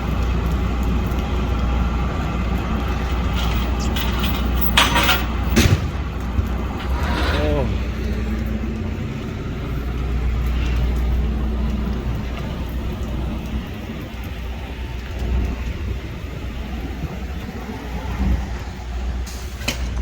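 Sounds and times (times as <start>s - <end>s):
traffic on wet street: 0.0s - 20.0s.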